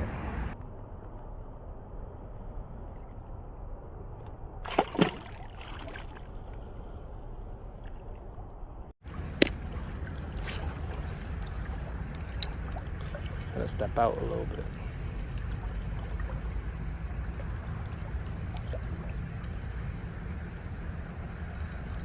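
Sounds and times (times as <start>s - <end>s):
river water sloshing: 4.1s - 22.0s
fish splashing in water: 4.6s - 6.4s.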